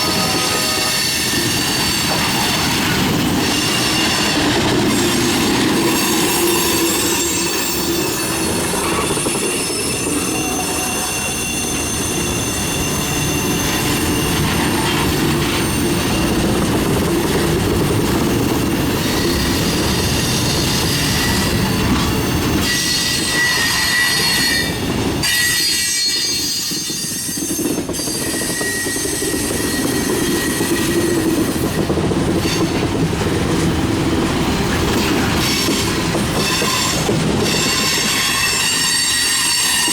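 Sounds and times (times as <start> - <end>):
wheel flanges squealing: 0.0 - 16.7
train wheels rumbling: 0.0 - 39.9.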